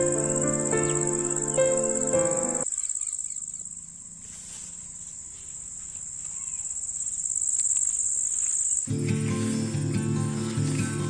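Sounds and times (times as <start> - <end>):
background music: 0.0 - 2.6, 8.9 - 11.0
insect trilling: 0.0 - 8.9.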